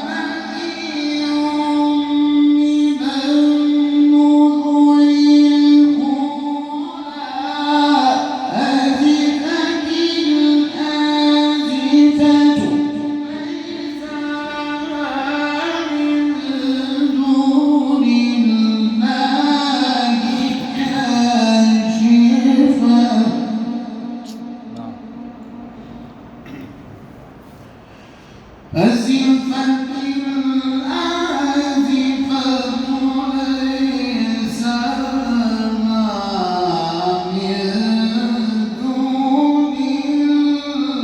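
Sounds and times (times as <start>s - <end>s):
man chanting recitation: 0.0s - 26.1s, 28.7s - 41.0s.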